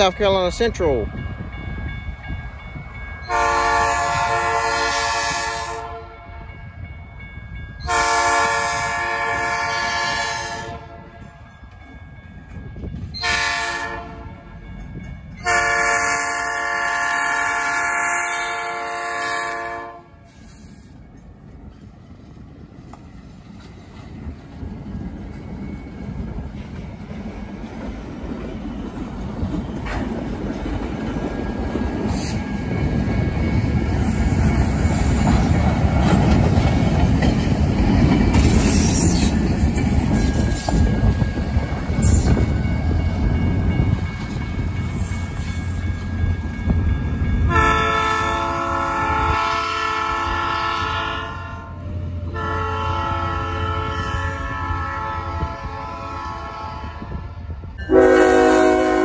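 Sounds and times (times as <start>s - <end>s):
diesel locomotive engine rumble: 0.0s - 59.0s
locomotive air horn: 3.3s - 6.3s, 7.9s - 11.2s, 13.2s - 14.4s, 15.4s - 20.4s, 47.5s - 59.0s
wheels clattering over rail joints: 22.9s - 46.3s.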